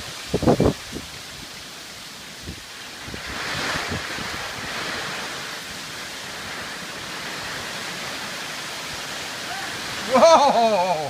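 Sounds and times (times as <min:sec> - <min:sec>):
rain rushing: 0:00.0 - 0:11.0
storm wind: 0:00.0 - 0:11.0.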